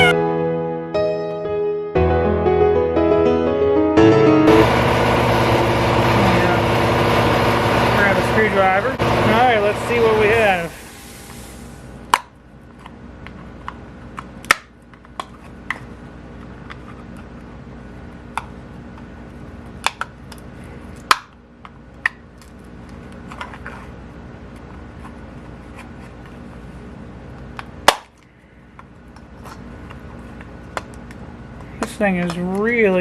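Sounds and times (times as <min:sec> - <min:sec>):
steady low hum: 0:04.5 - 0:14.1.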